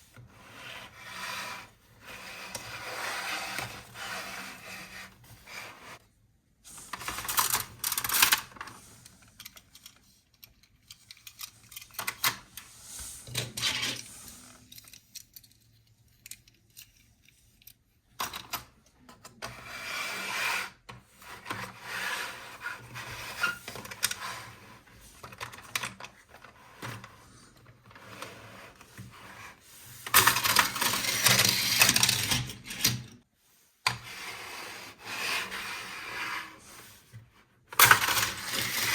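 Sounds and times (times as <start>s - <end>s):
plastic toys clicking and rattling: 6.9s - 12.5s, 14.6s - 19.4s, 30.1s - 33.1s, 37.8s - 38.9s.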